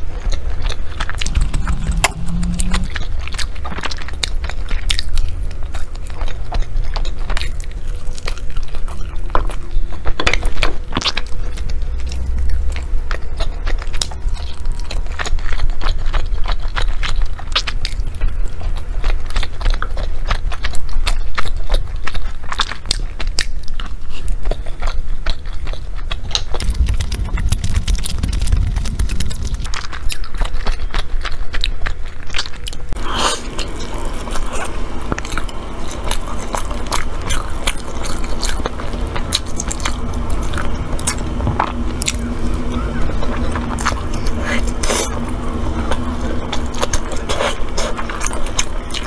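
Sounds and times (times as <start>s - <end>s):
biting and chewing: 0.0s - 49.0s.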